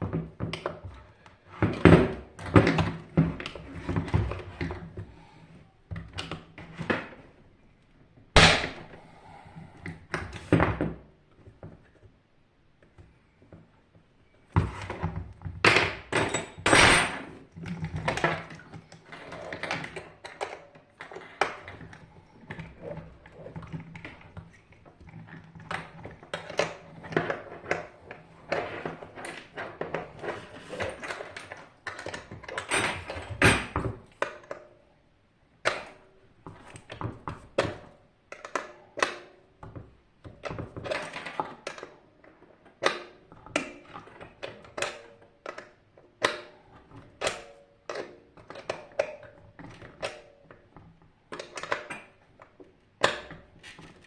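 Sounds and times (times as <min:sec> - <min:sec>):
hand tools and metal parts knocking: 0:14.7 - 0:34.6.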